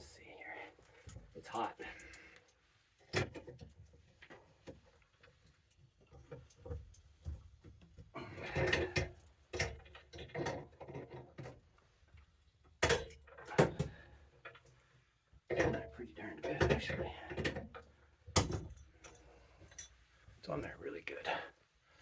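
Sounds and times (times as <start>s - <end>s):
tools and metal parts clattering: 8.4s - 11.6s, 12.8s - 13.9s.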